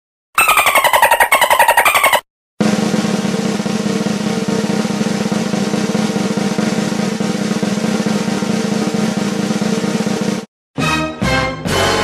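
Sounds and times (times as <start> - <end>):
snare drum roll: 2.6 - 10.5.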